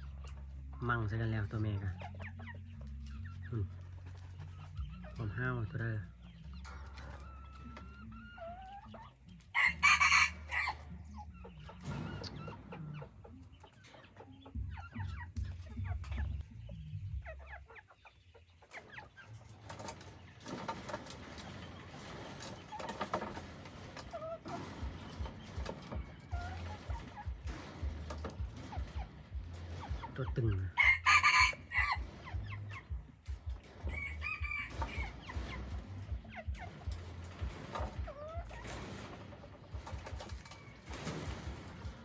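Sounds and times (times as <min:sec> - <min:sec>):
chickens clucking: 0:00.0 - 0:42.0
rooster crowing: 0:09.6 - 0:10.8, 0:30.8 - 0:32.0.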